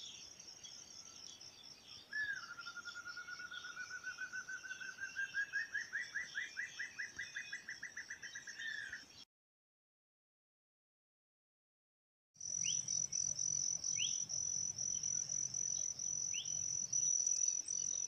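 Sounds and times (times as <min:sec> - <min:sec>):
high-pitched insect chorus: 0:00.0 - 0:05.6, 0:12.4 - 0:18.0.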